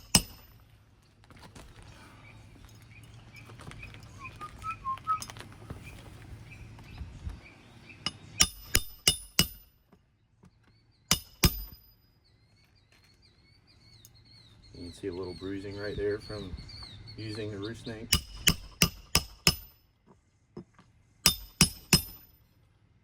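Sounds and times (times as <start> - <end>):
roof snake clinking under shingles: 0.0 - 6.4, 8.0 - 14.4.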